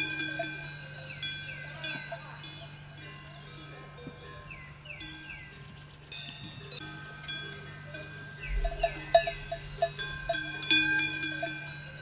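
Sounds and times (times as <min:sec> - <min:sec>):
metal bells clanking: 0:00.0 - 0:12.0.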